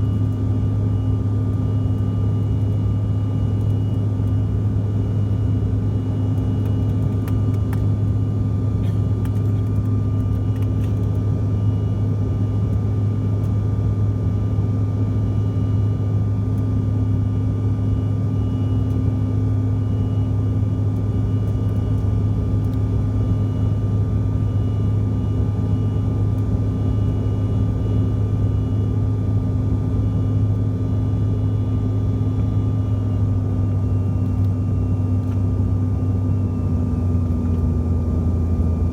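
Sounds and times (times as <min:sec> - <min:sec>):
airliner cabin drone: 0:00.0 - 0:38.9
faint engine whine: 0:00.0 - 0:38.9.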